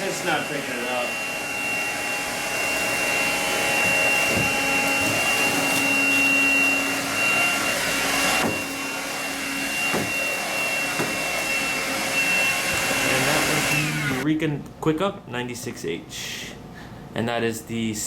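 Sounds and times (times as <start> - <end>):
cordless vacuum whining: 0.0 - 14.3.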